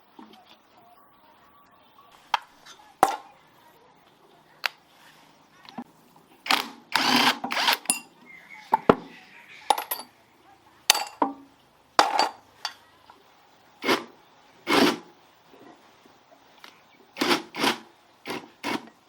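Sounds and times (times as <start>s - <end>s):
metal parts and tools clinking: 7.6s - 8.1s, 9.7s - 10.1s, 10.9s - 11.3s, 12.0s - 12.8s.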